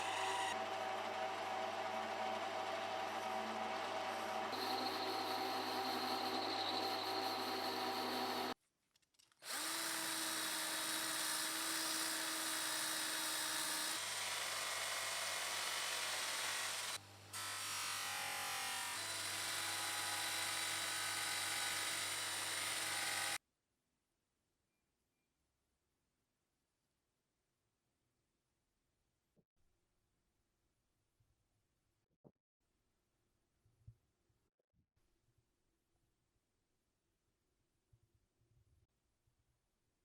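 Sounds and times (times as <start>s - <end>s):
small power tool humming: 0.0s - 8.6s, 9.4s - 23.4s.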